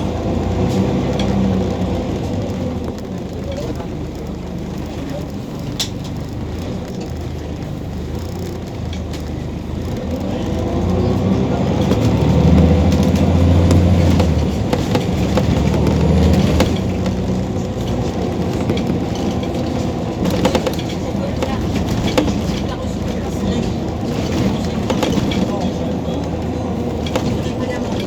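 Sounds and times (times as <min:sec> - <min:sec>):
bus engine accelerating: 0:00.0 - 0:28.0.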